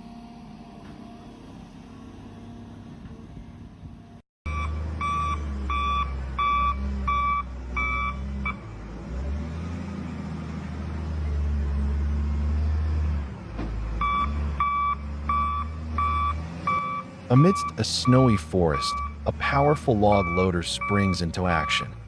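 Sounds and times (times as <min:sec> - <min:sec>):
diesel engine drone: 0:00.0 - 0:22.0
backup alarm beeping: 0:04.5 - 0:08.6, 0:14.0 - 0:22.0.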